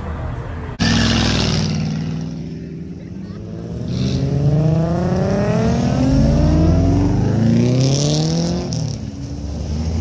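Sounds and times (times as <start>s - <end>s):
car engine accelerating: 0.8s - 10.0s.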